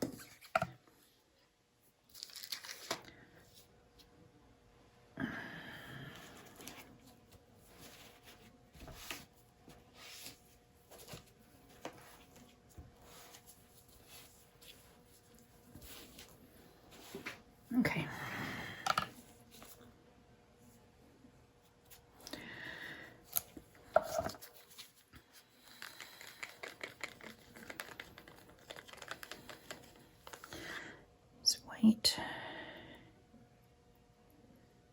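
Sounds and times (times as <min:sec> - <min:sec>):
small objects being handled: 0:02.0 - 0:03.1
paint cups and tools clicking: 0:25.7 - 0:30.5.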